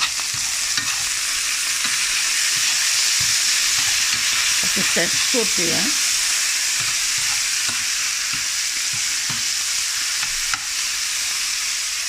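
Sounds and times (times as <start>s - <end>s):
utensil stirring and scraping: 0.0s - 9.4s
meat and onions sizzling in a pan: 0.0s - 12.0s.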